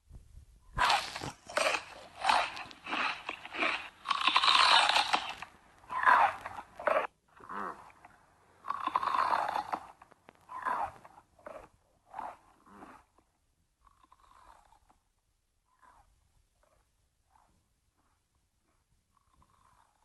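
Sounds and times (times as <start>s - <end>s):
crunchy chewing and biting: 0.8s - 13.2s.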